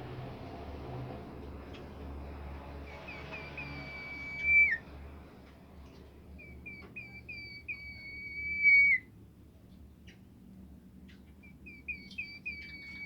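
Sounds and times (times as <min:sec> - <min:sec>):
songbird whistling: 0:02.9 - 0:04.8, 0:06.4 - 0:09.1, 0:11.4 - 0:13.0.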